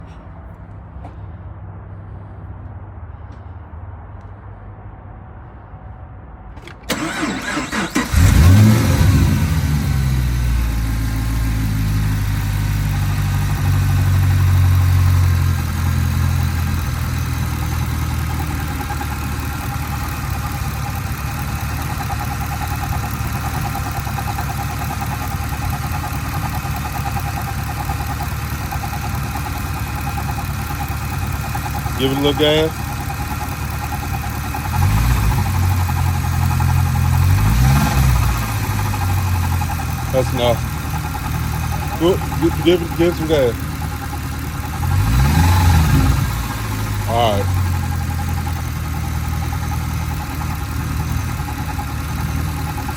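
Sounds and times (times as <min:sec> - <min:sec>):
starter cranking engine: 0:06.6 - 0:10.1, 0:16.4 - 0:52.9
car engine idling: 0:06.6 - 0:52.9.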